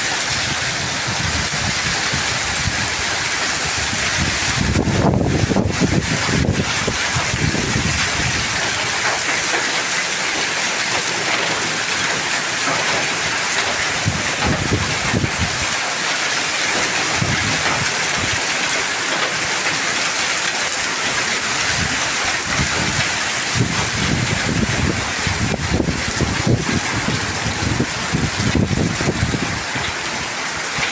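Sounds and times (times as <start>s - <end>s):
wind buffeting microphone: 0.0s - 9.2s, 13.7s - 15.8s, 17.0s - 18.4s, 21.5s - 30.9s
heavy rain with hail: 0.0s - 30.9s.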